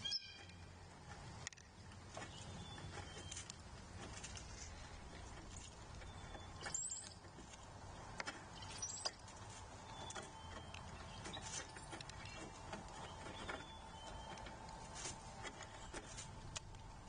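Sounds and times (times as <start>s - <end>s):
high bird chirps: 0.0s - 0.5s, 6.0s - 7.2s, 8.5s - 9.2s.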